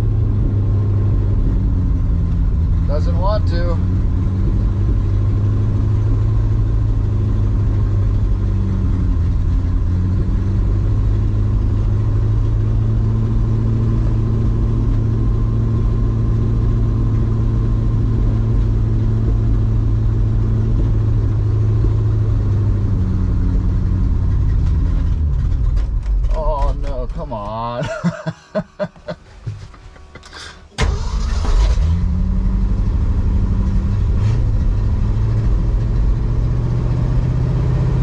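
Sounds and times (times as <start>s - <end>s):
truck engine fast idle: 24.4s - 32.0s.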